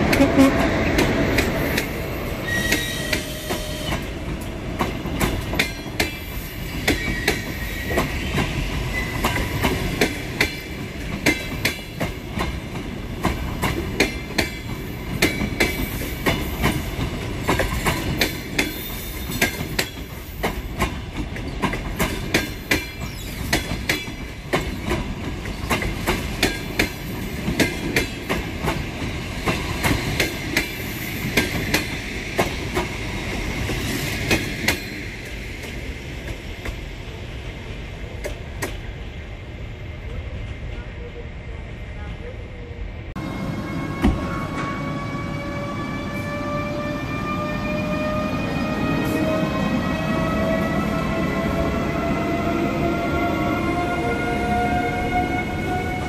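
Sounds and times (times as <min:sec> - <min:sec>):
train wheels clicking over rail joints: 0:00.0 - 0:36.9, 0:38.2 - 0:38.9
wheels squealing on rails: 0:01.6 - 0:04.2, 0:05.6 - 0:10.0, 0:21.4 - 0:26.0, 0:33.2 - 0:35.2, 0:43.4 - 0:56.0.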